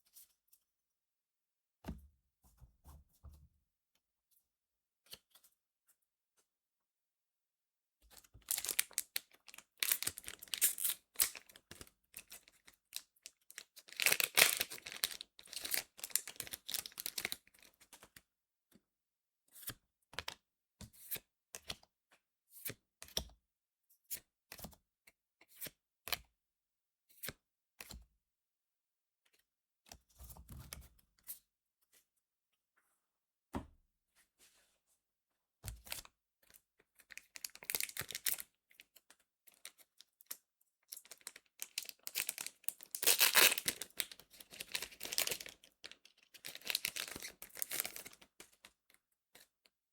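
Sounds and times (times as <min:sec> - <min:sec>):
foil pack tearing and crinkling: 0:13.9 - 0:17.3, 0:41.7 - 0:45.6.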